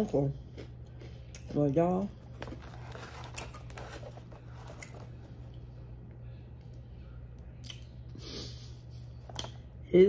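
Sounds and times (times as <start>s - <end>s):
steady low hum: 0.0s - 10.0s
person chewing food: 0.1s - 5.7s.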